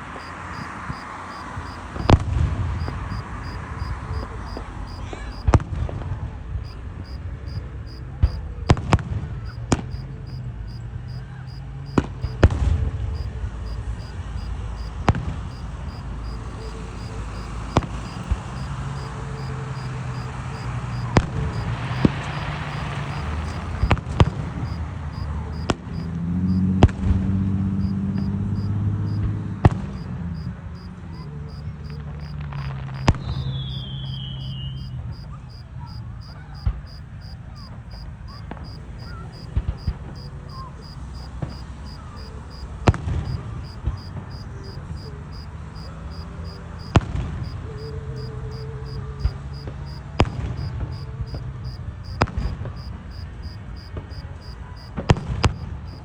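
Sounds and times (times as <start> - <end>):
cricket chirping: 0.0 - 5.5, 6.6 - 8.8, 9.4 - 12.5, 13.1 - 26.8, 27.7 - 29.2, 29.9 - 32.4, 33.0 - 56.0
falling firework whistle: 32.9 - 35.2.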